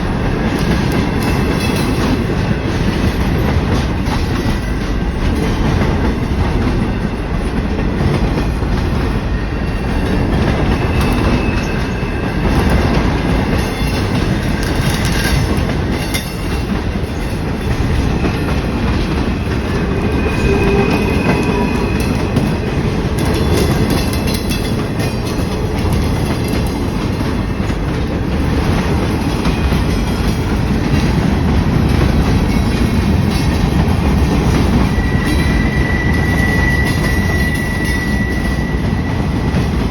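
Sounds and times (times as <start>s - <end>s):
train wheels clacking on rail joints: 0.0s - 39.9s
high-pitched wheel squeals: 19.4s - 23.6s, 34.4s - 39.7s.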